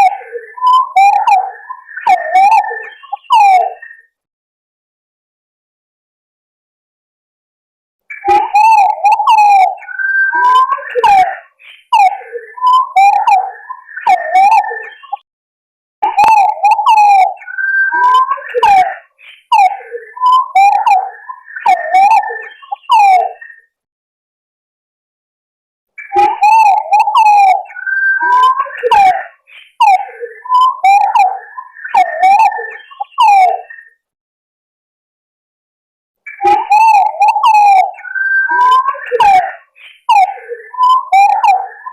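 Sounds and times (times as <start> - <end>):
pigeons warbling whistled calls: 0.0 - 4.1, 8.1 - 15.2, 16.0 - 23.7, 26.0 - 34.0, 36.3 - 41.9.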